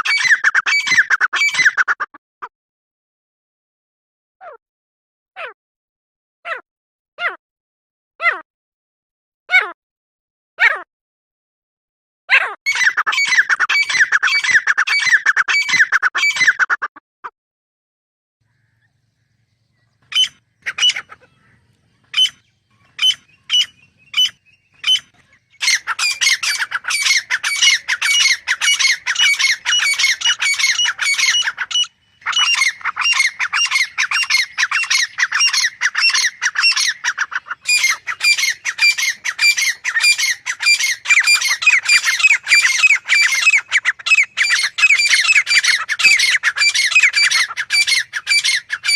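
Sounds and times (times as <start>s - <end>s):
francolin calling shrill notes: 37.6s - 48.9s.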